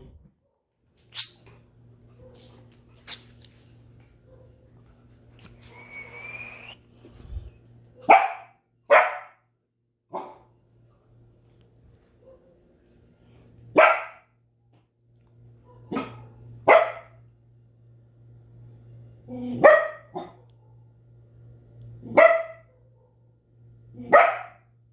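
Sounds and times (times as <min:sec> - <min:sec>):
dog barking: 0:02.2 - 0:02.6, 0:04.2 - 0:04.7, 0:08.0 - 0:09.5, 0:10.1 - 0:10.5, 0:12.2 - 0:12.6, 0:13.7 - 0:14.4, 0:15.6 - 0:17.2, 0:19.5 - 0:20.9, 0:22.0 - 0:23.4, 0:24.0 - 0:24.7.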